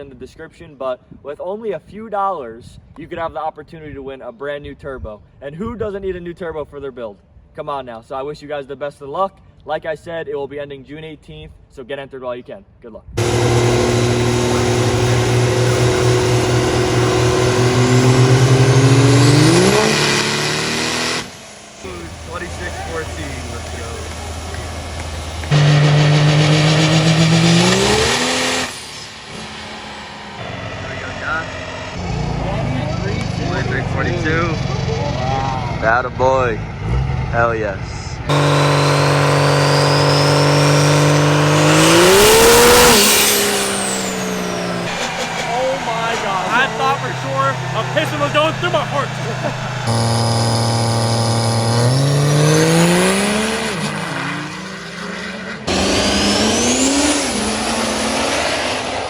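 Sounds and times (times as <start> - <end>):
diesel truck engine under load: 13.2 - 59.0
turbo whistle: 38.3 - 53.9.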